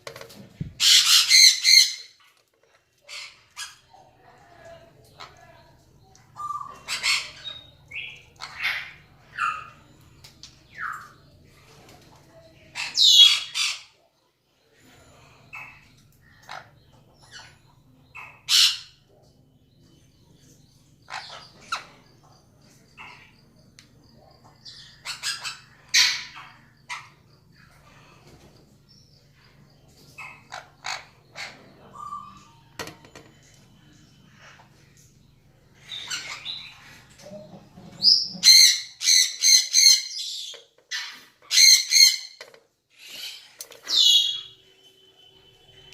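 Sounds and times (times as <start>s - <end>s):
parrot squawking: 0.8s - 2.2s, 38.0s - 42.4s
parrots calling: 0.8s - 2.4s, 3.0s - 4.1s, 6.3s - 10.0s, 12.7s - 14.0s, 15.5s - 19.0s, 21.0s - 22.1s, 24.4s - 28.0s, 29.9s - 32.7s, 35.8s - 45.1s.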